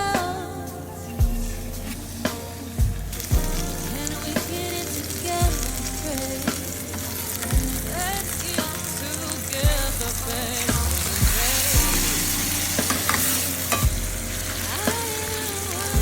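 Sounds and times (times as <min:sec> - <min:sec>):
background music with drum beat: 0:00.0 - 0:16.0
food sizzling in a pan: 0:11.5 - 0:16.0.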